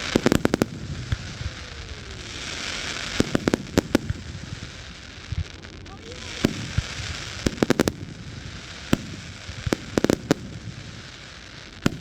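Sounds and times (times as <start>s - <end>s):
background hiss: 0.0s - 12.0s
fireworks bangs and pops: 0.0s - 12.0s.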